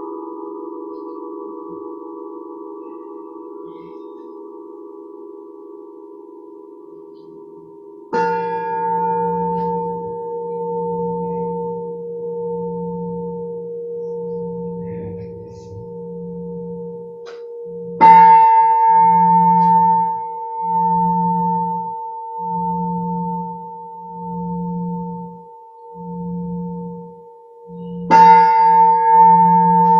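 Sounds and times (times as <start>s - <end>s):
pulsing low hum: 0.0s - 18.3s
singing bowl ringing: 0.0s - 29.9s.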